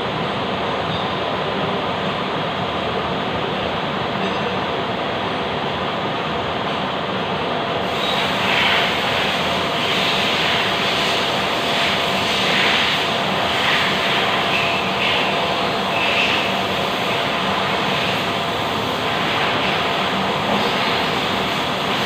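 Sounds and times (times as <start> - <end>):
lathe humming and whining: 0.0 - 22.0.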